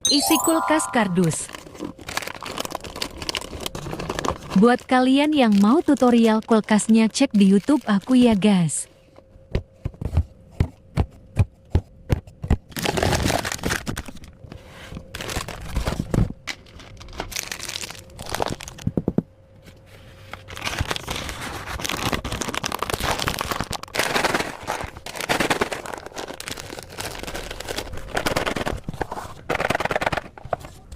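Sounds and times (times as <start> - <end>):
packaging crinkling and rustling: 1.5 - 8.4, 12.7 - 19.0, 20.3 - 30.8.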